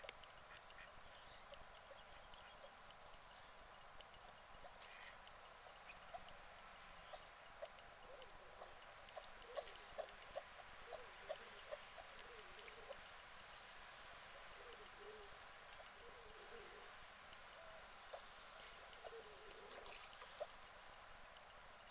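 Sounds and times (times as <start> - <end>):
steady hiss: 0.0 - 21.9
guinea pig chewing straw: 3.2 - 19.7.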